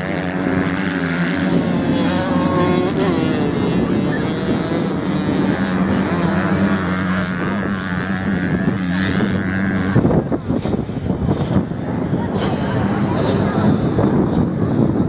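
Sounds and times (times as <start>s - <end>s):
racing motorcycle engines: 0.0s - 15.0s.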